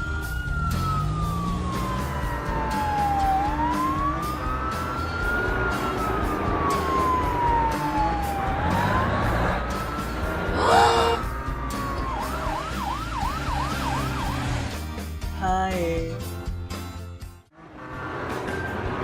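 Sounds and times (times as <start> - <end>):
emergency siren wailing: 0.0 - 14.7.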